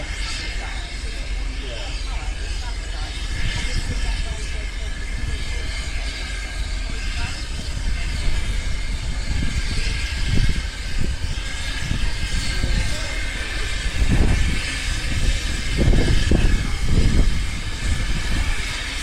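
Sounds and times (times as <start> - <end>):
train rumbling along track: 0.0 - 19.0.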